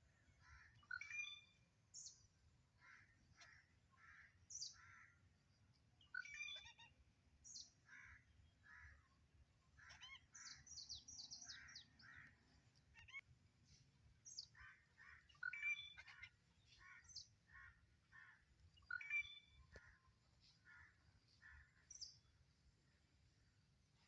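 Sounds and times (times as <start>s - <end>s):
short bird calls: 9.8s - 13.2s, 14.2s - 22.3s.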